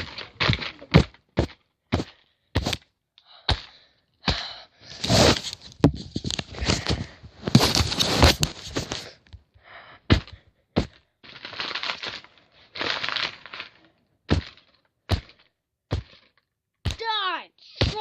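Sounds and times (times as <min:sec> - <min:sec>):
paper crumpling: 0:05.1 - 0:09.2, 0:11.2 - 0:13.9
sharp knocks of blows: 0:16.8 - 0:17.2.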